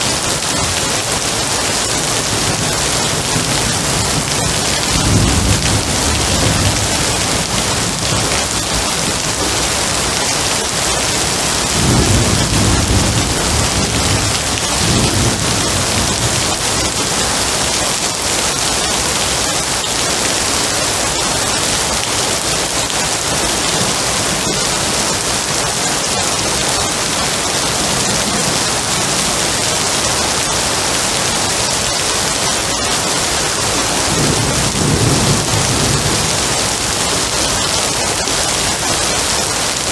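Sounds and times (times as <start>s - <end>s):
heavy rain: 0.0s - 39.9s
low rolling thunder: 2.0s - 9.6s, 11.2s - 17.2s, 33.6s - 37.8s.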